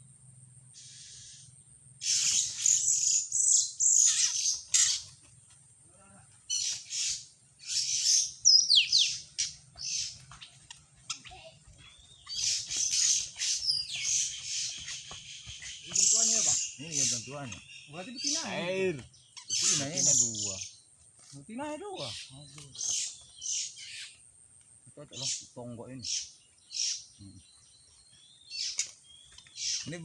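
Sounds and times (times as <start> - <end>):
small birds harsh chirps: 0.0 - 30.0.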